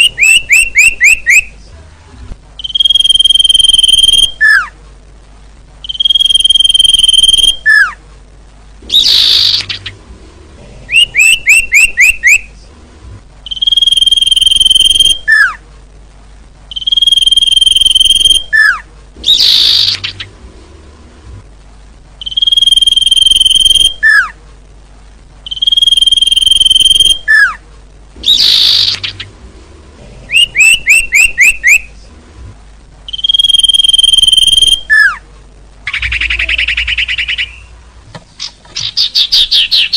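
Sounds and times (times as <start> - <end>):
recorded birdsong lure call: 0.0 - 1.6, 2.6 - 4.8, 5.8 - 8.0, 8.8 - 10.0, 10.9 - 12.6, 13.4 - 15.6, 16.7 - 20.4, 22.2 - 24.4, 25.4 - 27.6, 28.2 - 29.4, 30.3 - 32.0, 33.1 - 35.2, 35.8 - 39.9.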